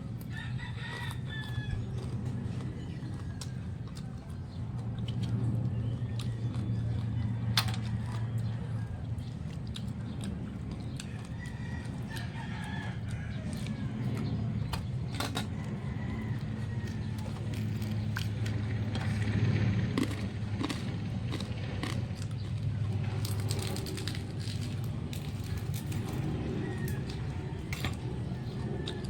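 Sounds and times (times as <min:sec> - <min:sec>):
low hum: 0:00.0 - 0:29.0
rooster crowing: 0:00.2 - 0:02.6, 0:11.0 - 0:18.3, 0:25.1 - 0:29.0.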